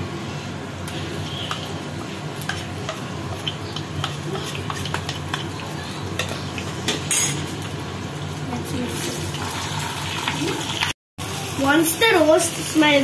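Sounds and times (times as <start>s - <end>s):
spices sizzling in hot oil: 0.2s - 13.0s
metal spoon scraping a bowl: 2.4s - 6.5s.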